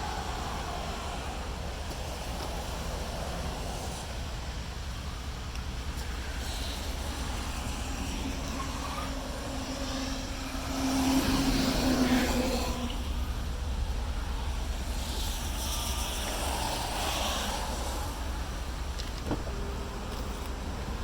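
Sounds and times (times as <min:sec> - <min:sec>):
low engine rumble: 0:00.0 - 0:21.0
droning tone: 0:05.0 - 0:21.0.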